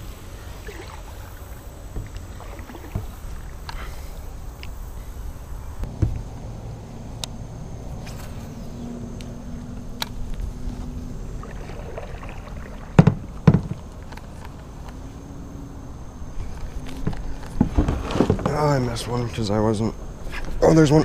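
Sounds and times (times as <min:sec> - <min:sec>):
low background noise: 0:00.0 - 0:21.0
knocks on kayak: 0:13.0 - 0:13.8.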